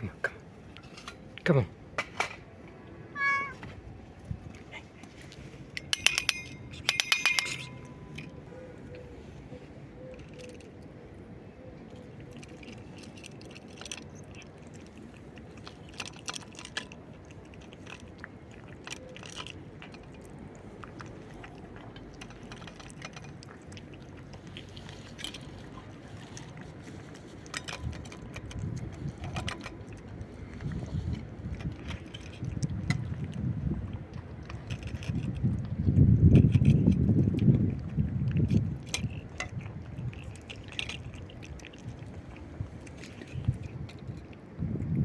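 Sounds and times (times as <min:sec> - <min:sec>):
cat crunching dry food: 0:00.0 - 0:08.5, 0:11.8 - 0:45.0.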